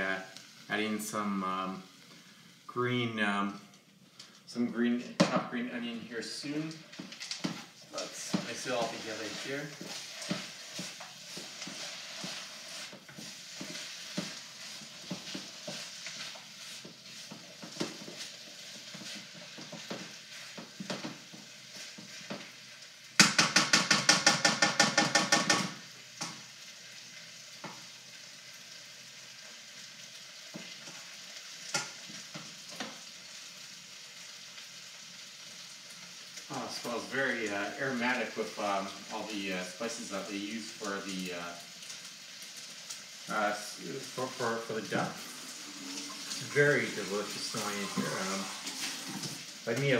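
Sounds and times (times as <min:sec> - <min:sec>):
rice sizzling in a wok: 0:00.0 - 0:49.9
spatula scraping a wok: 0:06.8 - 0:22.6, 0:45.2 - 0:49.6.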